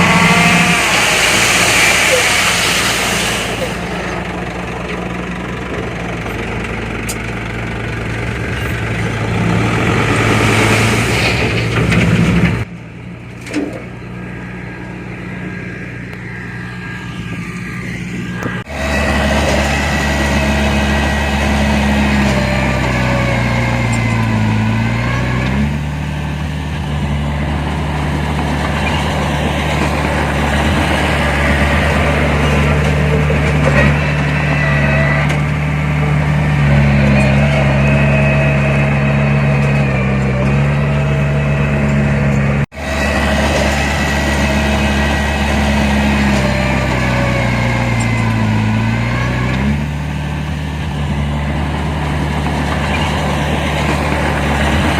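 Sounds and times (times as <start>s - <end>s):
heavy diesel engine under load: 0.0s - 54.9s.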